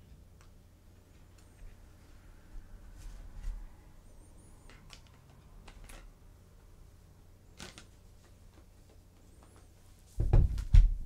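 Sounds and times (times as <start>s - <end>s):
faint clicks of tablet handling: 4.6s - 6.2s.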